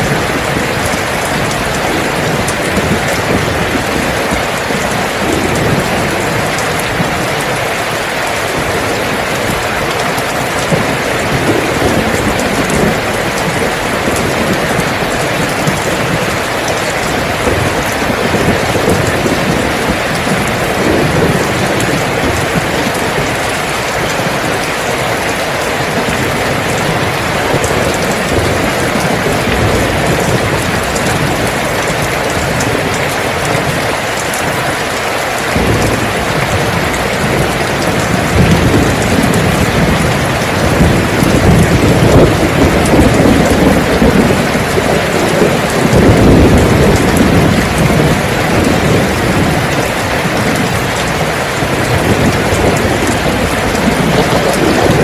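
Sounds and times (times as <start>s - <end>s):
heavy rain falling: 0.0s - 55.0s
low rumbling thunder: 0.0s - 55.0s.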